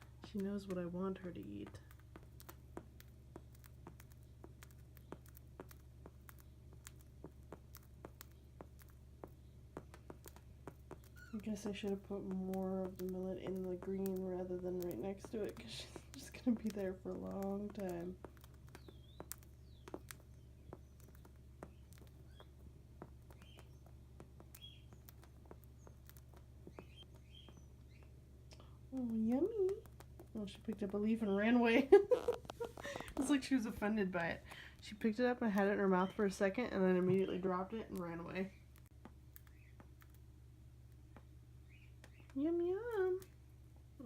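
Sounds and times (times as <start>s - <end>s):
bird tapping on plastic mat: 0.0s - 33.8s
low steady hum: 0.0s - 44.0s.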